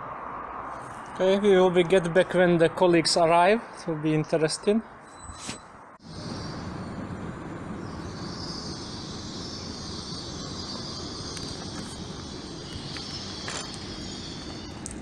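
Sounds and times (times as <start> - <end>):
high hiss: 6.0 - 15.0
train rumble: 6.0 - 15.0.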